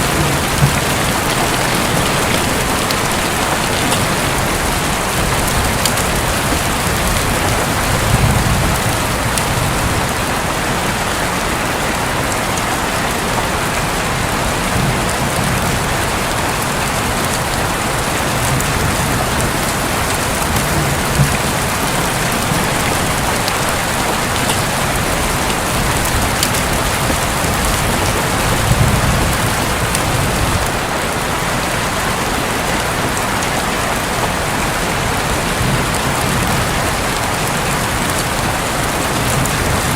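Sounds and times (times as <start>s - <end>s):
distant thunder rumbles: 0.0s - 10.4s, 14.4s - 31.0s
heavy rain drumming on a roof: 0.0s - 39.9s.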